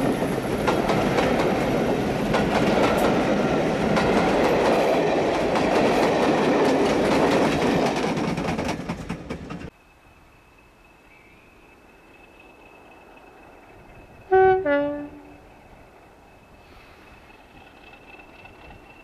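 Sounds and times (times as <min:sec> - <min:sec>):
wheels clicking over rail joints: 0:00.0 - 0:09.8, 0:16.7 - 0:19.0
train passing with heavy rumble: 0:00.0 - 0:19.0.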